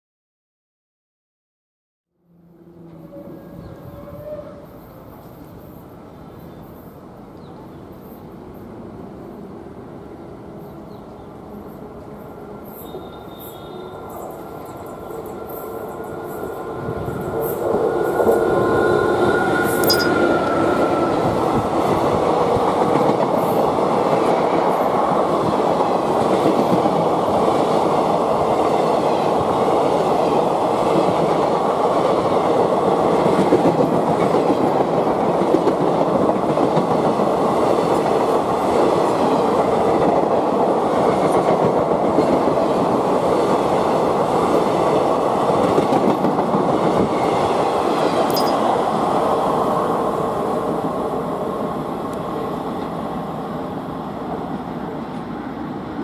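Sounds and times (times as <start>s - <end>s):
train coaches rushing on rails: 2.8s - 56.0s
locomotive tone: 18.4s - 21.3s, 48.3s - 48.7s.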